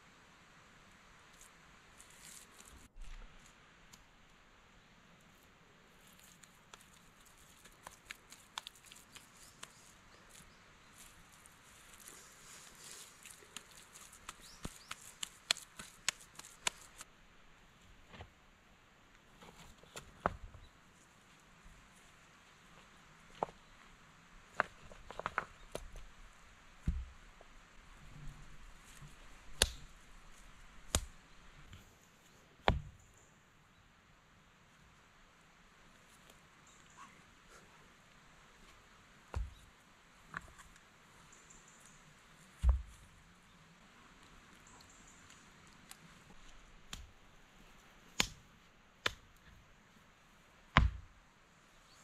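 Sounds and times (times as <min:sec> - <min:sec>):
stones clacking together: 0:24.5 - 0:26.1
dull thud: 0:26.8 - 0:27.2, 0:32.7 - 0:33.0, 0:50.8 - 0:51.1.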